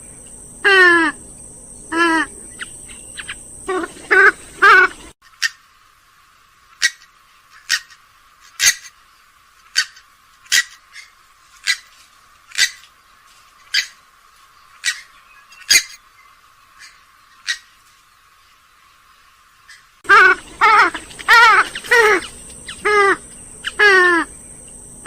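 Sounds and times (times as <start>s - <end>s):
swamphen short sharp calls: 1.9s - 5.6s, 19.7s - 24.8s.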